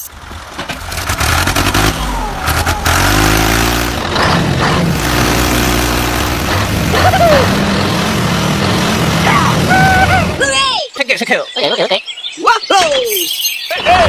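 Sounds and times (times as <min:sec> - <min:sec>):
heavy vehicle engine revving: 0:00.1 - 0:10.4.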